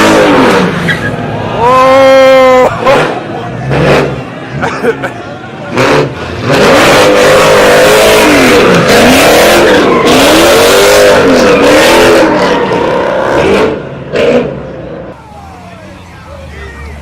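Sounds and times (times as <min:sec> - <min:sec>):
car engine revving: 0:02.8 - 0:04.6, 0:05.6 - 0:17.0.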